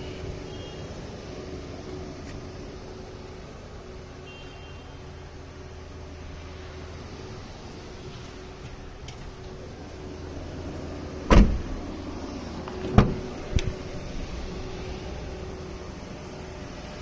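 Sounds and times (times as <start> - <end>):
steady low hum: 5.3 - 17.0
sharp thumps: 11.3 - 11.9.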